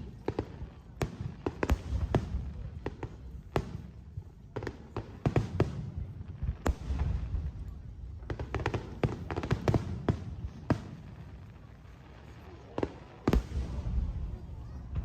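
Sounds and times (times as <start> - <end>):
fireworks bangs and crackles: 0.0 - 15.0
low rumble of booms: 13.3 - 15.0.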